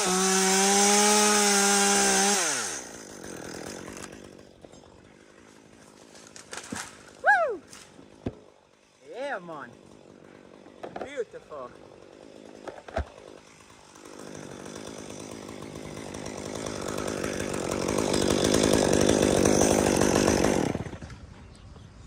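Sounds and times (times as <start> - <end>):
chainsaw running: 0.0 - 21.4.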